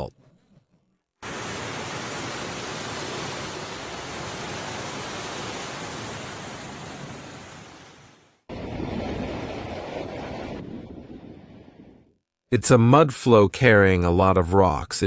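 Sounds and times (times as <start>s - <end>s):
floodwater rushing: 1.2s - 10.8s.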